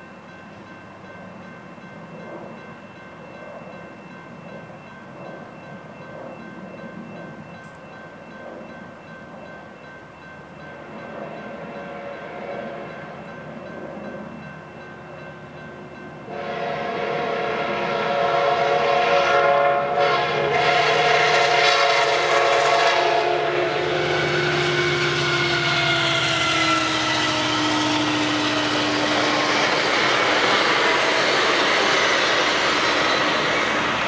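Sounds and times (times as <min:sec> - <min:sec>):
train rumbling on rails: 0:00.0 - 0:34.0
train horn chord: 0:11.5 - 0:13.1, 0:16.3 - 0:29.9.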